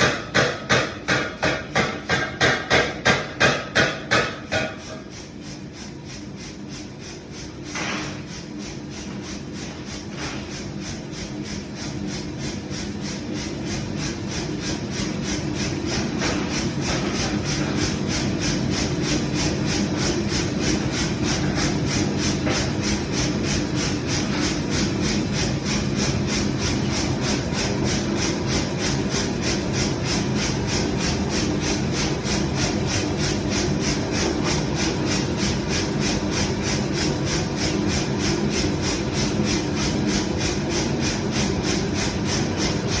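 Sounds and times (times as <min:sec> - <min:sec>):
power hammer striking: 0:00.0 - 0:05.0.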